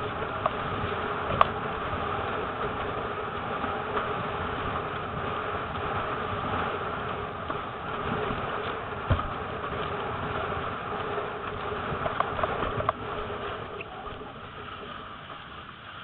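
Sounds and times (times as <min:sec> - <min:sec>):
water rushing: 0:00.0 - 0:16.0
wind buffeting microphone: 0:00.0 - 0:16.0
sharp thump: 0:09.1 - 0:09.4.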